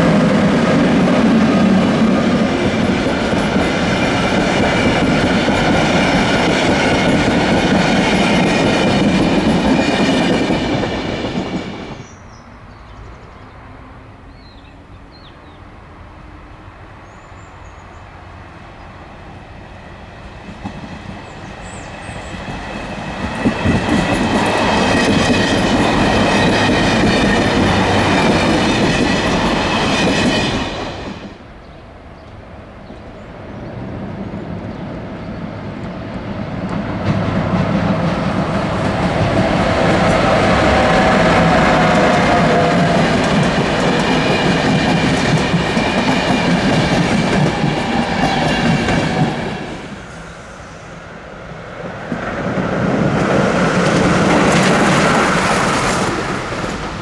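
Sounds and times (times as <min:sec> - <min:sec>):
train wheels clacking on rails: 0:00.0 - 0:12.1, 0:20.2 - 0:31.4, 0:36.6 - 0:50.0, 0:52.1 - 0:57.0
electric train rumbling past: 0:00.0 - 0:57.0.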